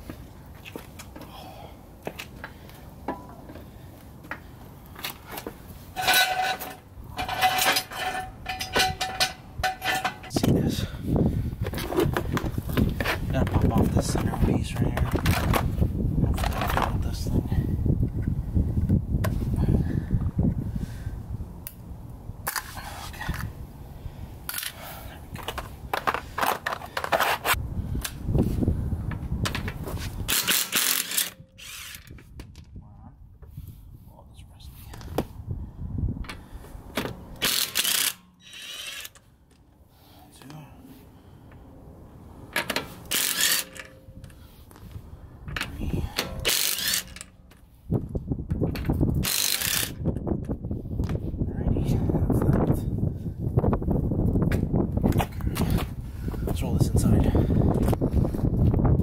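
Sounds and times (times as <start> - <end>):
car jack squeaking and grating: 5.9 - 10.4, 26.2 - 27.6, 30.3 - 32.2, 37.4 - 39.2, 42.6 - 44.1, 45.7 - 47.4, 49.2 - 50.0
tool undoing lug bolts: 5.9 - 10.5, 29.5 - 32.3, 37.0 - 39.3, 42.5 - 44.5, 45.5 - 47.6, 48.6 - 50.0.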